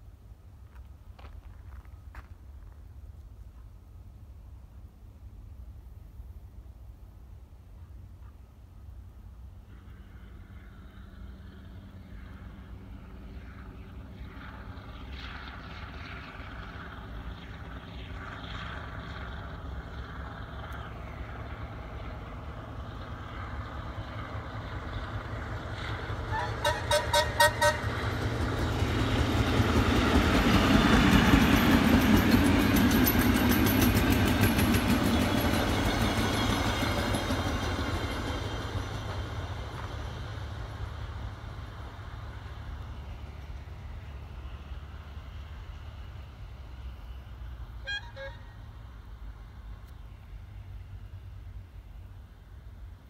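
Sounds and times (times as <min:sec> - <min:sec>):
train passing: 0:00.0 - 0:53.0
train wheel clatter: 0:26.1 - 0:42.4
train horn toot: 0:26.3 - 0:28.1, 0:47.8 - 0:48.6.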